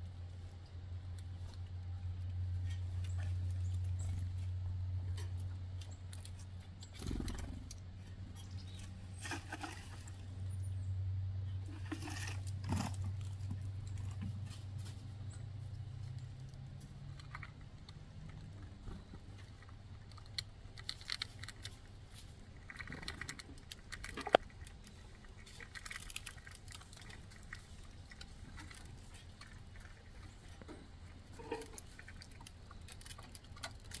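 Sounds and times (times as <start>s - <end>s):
squirrels scratching and gnawing: 0.0s - 10.8s, 11.4s - 34.0s
low hum: 0.0s - 34.0s.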